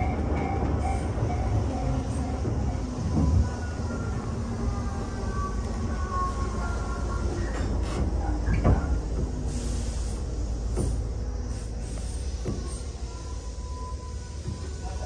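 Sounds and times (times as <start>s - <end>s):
train wheels rumbling on rail: 0.0s - 15.0s
faint brake squeals: 10.9s - 15.0s.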